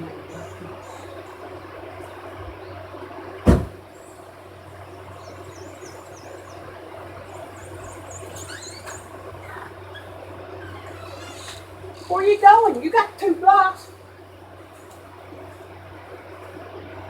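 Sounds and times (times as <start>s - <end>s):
steady background hum: 0.0s - 17.0s
loud thump: 3.4s - 3.8s
faint high chirps: 5.0s - 12.2s.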